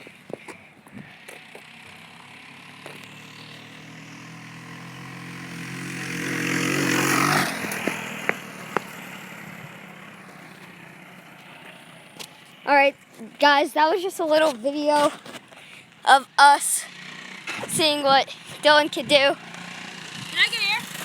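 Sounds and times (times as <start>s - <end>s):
dirt bike engine passing by: 1.0s - 12.7s, 16.5s - 21.0s.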